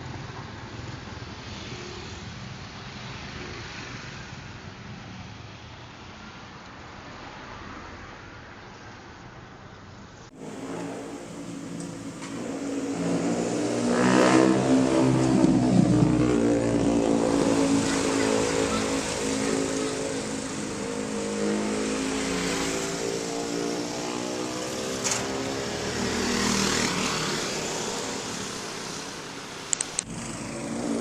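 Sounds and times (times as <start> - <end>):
vehicle engine revving: 10.3 - 31.0.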